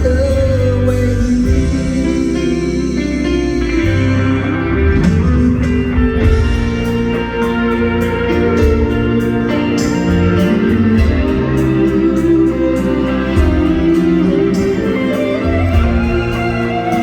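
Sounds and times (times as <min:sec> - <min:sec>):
electric guitar: 0:00.0 - 0:17.0
live rock band playing: 0:00.0 - 0:17.0
drum hits: 0:05.0 - 0:11.8.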